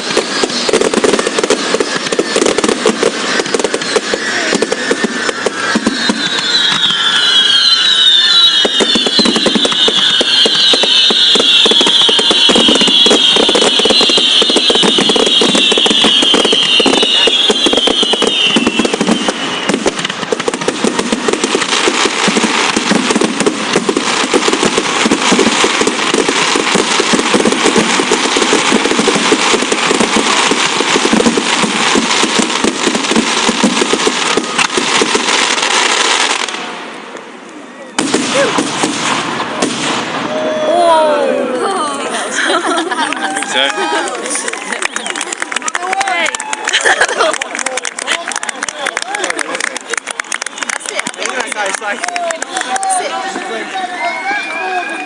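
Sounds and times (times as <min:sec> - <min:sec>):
fireworks high whistles: 0:00.0 - 0:41.2, 0:52.6 - 0:55.0
fireworks bangs and crackling: 0:00.0 - 0:41.4, 0:42.1 - 0:55.0.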